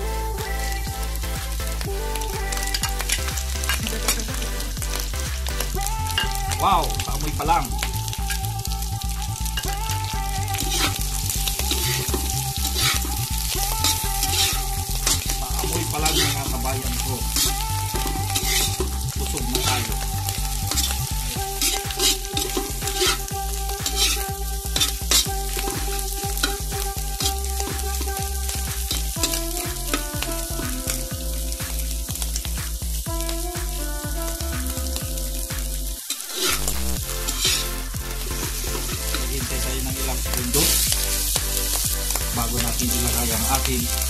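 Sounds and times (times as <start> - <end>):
music with low beat: 0.0 - 44.0
mussels sizzling in oil: 0.0 - 44.0.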